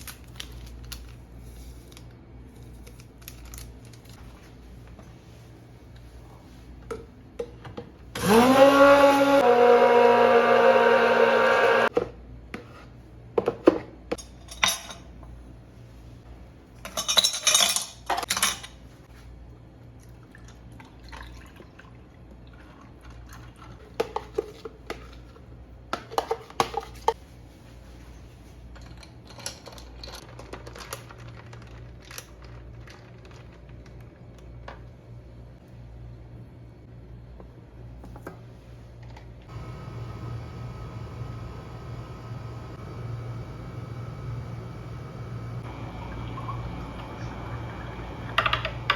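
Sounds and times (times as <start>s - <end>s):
electric blender whining: 8.2s - 11.9s, 39.5s - 48.9s
utensils and glassware clinking: 16.8s - 18.8s.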